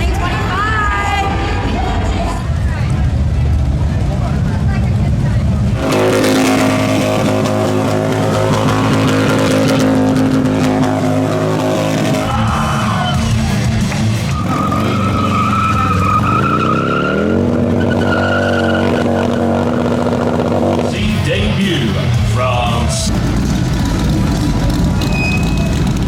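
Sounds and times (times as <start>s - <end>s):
motorcycle engine revving: 2.8s - 26.0s
tyre squeal: 14.2s - 20.2s, 25.0s - 26.0s.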